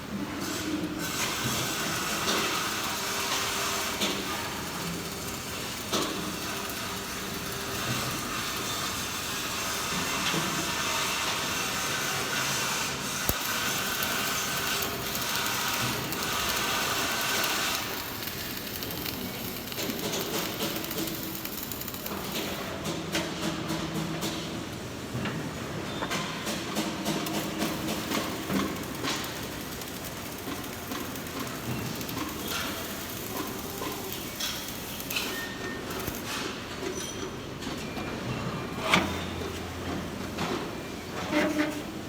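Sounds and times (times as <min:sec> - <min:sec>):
welding arc hissing and crackling: 0:00.4 - 0:23.3, 0:26.8 - 0:36.5.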